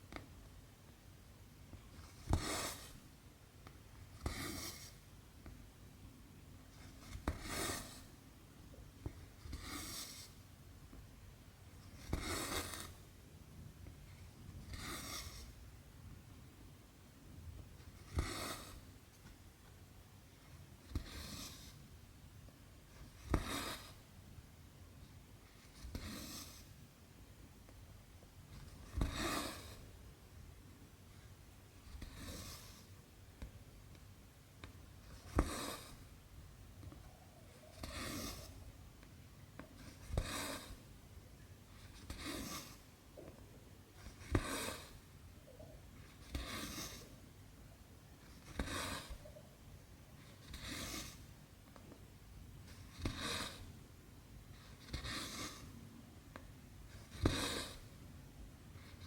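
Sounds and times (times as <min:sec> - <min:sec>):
thread rasping through cloth: 0:28.5 - 0:29.8, 0:34.6 - 0:36.2, 0:36.8 - 0:38.7, 0:44.0 - 0:47.2, 0:48.2 - 0:49.4, 0:50.2 - 0:51.9, 0:52.7 - 0:53.8, 0:54.6 - 0:58.0.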